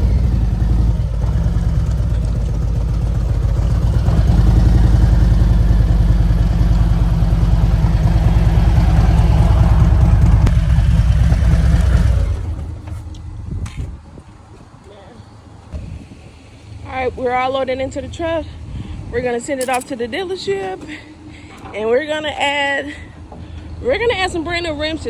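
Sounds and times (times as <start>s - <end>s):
engine running loudly: 0.0s - 14.0s.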